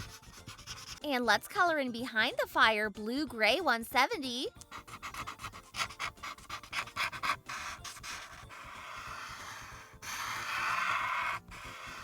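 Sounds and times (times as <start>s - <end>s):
marker scratching on paper: 0.0s - 1.0s, 4.6s - 12.0s.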